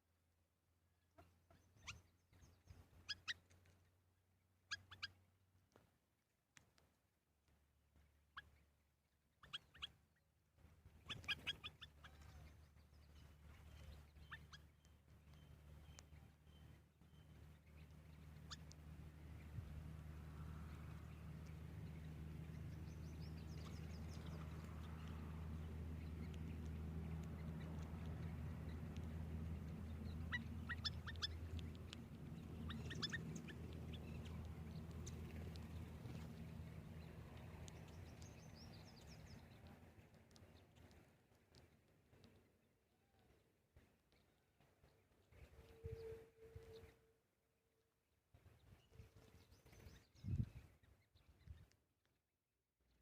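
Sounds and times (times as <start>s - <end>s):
small birds chirping: 1.0s - 47.0s, 48.4s - 51.9s
low steady hum: 10.1s - 47.2s.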